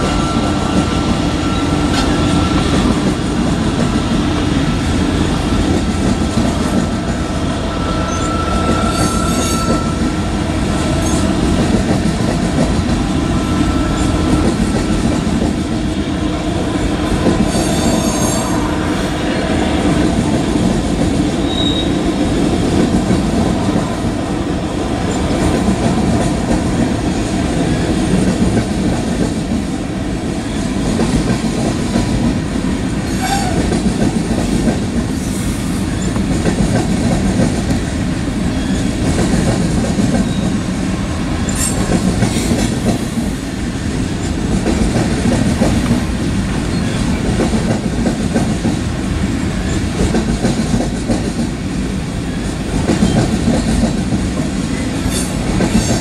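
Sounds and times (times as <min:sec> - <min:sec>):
train wheels rumbling on rail: 0:00.0 - 0:56.0
high wheel squeal: 0:07.5 - 0:10.2, 0:17.5 - 0:18.6, 0:21.4 - 0:22.0, 0:40.2 - 0:40.6.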